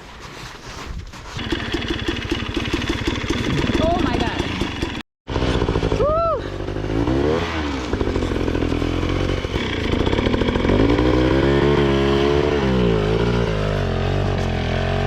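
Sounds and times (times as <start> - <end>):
dirt bike engine revving: 1.4 - 15.0.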